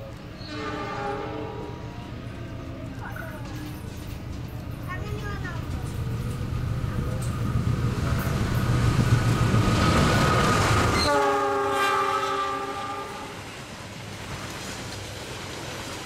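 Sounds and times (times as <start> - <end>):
train rumbling past: 0.0 - 16.0
train horn chord: 0.4 - 1.8, 11.0 - 13.4.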